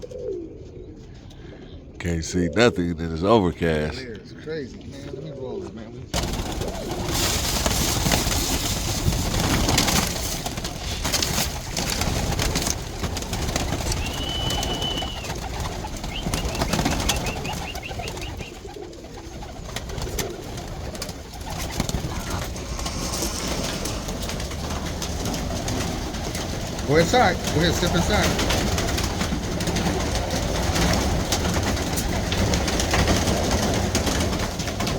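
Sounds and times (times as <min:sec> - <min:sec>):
pigeons cooing: 0:00.0 - 0:03.4, 0:04.6 - 0:34.9
noisy rustle: 0:06.2 - 0:18.2, 0:19.6 - 0:34.9.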